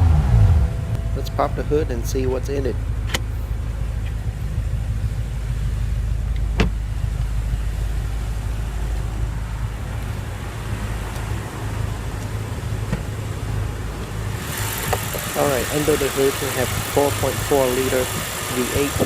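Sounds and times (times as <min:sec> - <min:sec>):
car engine idling: 0:00.0 - 0:19.0
sharp click: 0:03.0 - 0:03.3.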